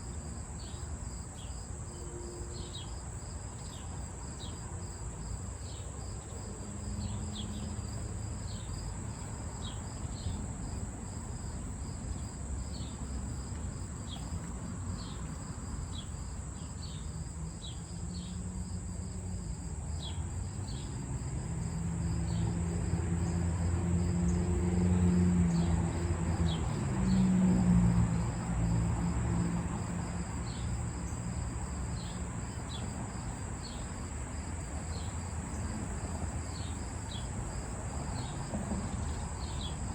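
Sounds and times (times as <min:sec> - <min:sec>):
crickets and insects chirping: 0:00.0 - 0:39.9.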